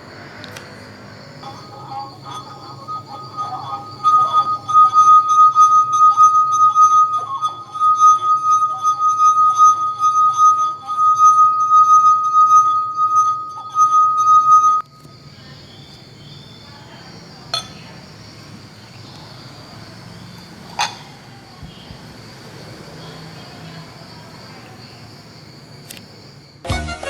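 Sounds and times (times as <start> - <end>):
steady high ringing tone: 0.7 - 19.6
drinking glasses clinking: 1.4 - 14.9, 17.5 - 18.1, 20.7 - 21.8.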